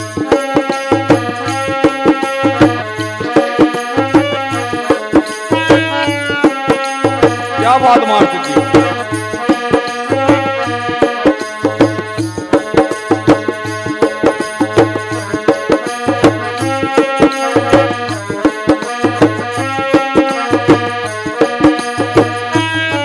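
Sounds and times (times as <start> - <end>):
fast hand drum rhythm: 0.0 - 23.0
melody instrument holding notes: 5.5 - 6.5, 7.5 - 9.2.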